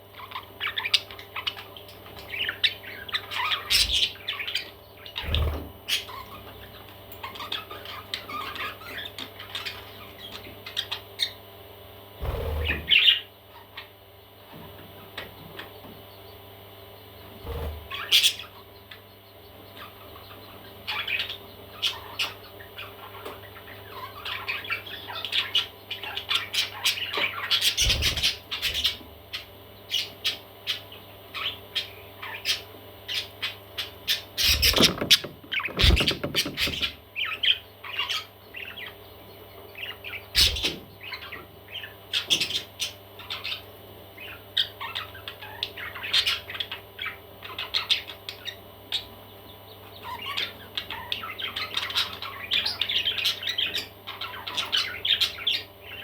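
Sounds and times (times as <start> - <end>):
baby parrots chirping and squawking: 0.0 - 11.4, 12.2 - 14.0, 17.2 - 56.0.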